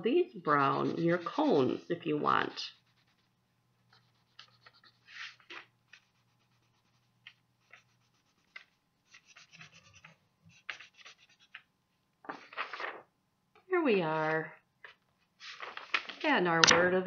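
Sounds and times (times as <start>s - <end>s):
coloring strokes on paper: 0.3s - 11.7s.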